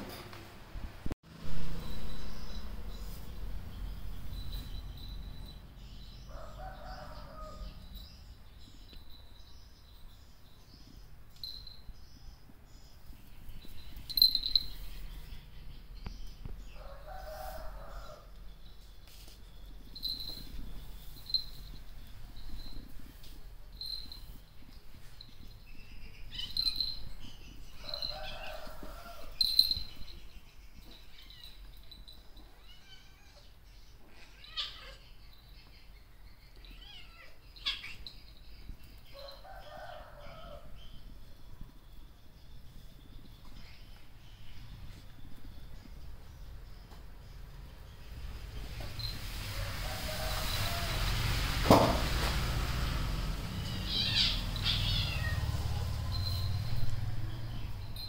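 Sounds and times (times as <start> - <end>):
birds chirping: 1.7 - 49.2, 53.4 - 58.0.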